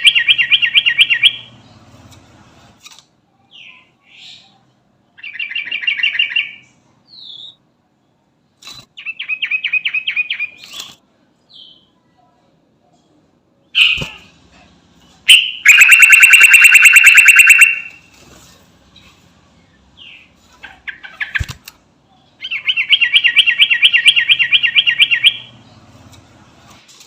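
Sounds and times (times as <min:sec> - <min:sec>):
bird singing rapid notes: 0:00.0 - 0:01.8, 0:15.3 - 0:18.0, 0:22.4 - 0:25.9.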